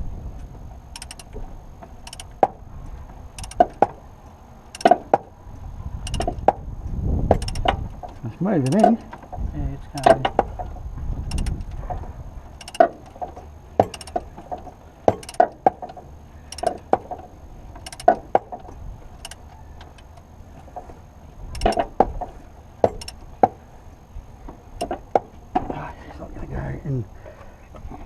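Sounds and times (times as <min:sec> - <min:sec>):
wrench clicking on bolt: 0:00.9 - 0:01.4, 0:02.0 - 0:02.5, 0:03.4 - 0:03.9, 0:04.7 - 0:05.2, 0:06.0 - 0:06.5, 0:07.3 - 0:09.2, 0:11.3 - 0:11.7, 0:12.6 - 0:13.2, 0:13.8 - 0:14.3, 0:15.1 - 0:15.7, 0:16.5 - 0:17.0, 0:17.8 - 0:18.4, 0:19.2 - 0:20.3, 0:21.5 - 0:22.0, 0:22.8 - 0:23.5.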